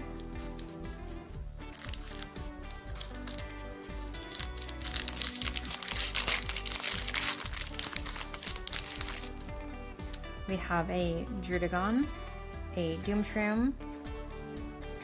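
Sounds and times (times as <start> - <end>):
background music: 0.0 - 15.0
foil wrapper crinkling: 1.7 - 9.5.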